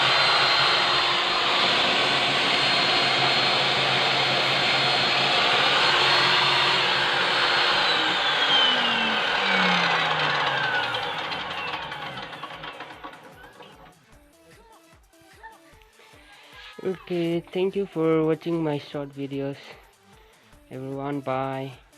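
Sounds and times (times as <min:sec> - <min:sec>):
circular saw whining: 0:00.0 - 0:14.0.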